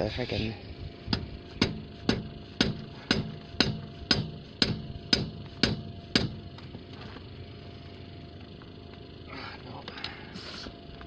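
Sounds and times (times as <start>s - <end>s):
hammer blows on metal: 1.1s - 6.4s.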